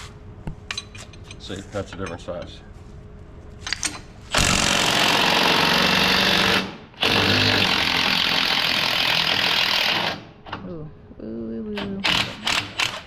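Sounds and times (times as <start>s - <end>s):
impact wrench running: 4.3s - 10.3s, 12.0s - 13.0s.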